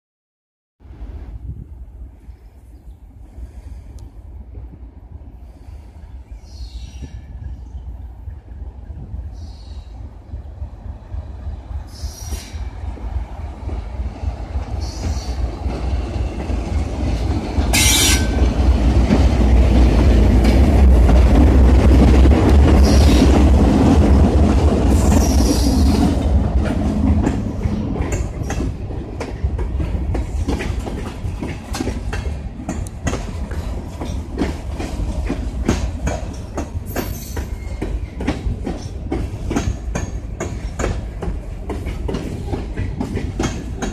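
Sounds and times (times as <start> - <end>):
diesel locomotive engines: 0.8 - 43.9
train wheels clacking over rail joints: 14.5 - 43.9.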